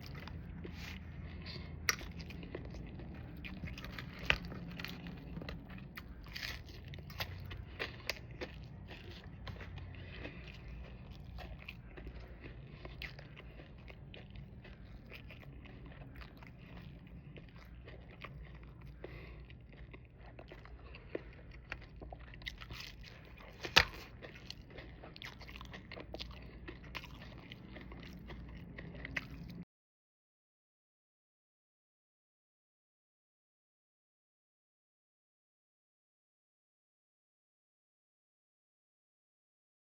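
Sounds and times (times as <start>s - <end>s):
person chewing and crunching: 0.0s - 29.6s.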